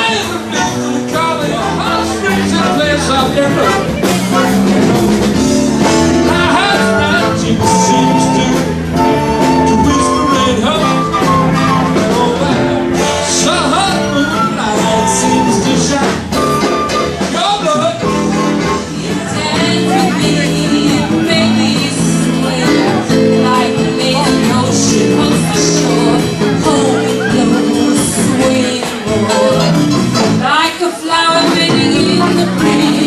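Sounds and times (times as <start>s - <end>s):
electric guitar: 0.0s - 33.0s
live band playing blues-rock: 0.0s - 33.0s.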